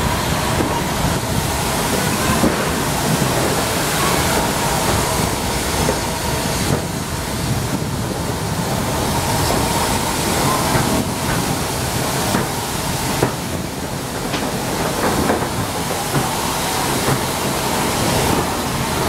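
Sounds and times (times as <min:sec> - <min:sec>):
train rumble and hiss: 0:00.0 - 0:19.0.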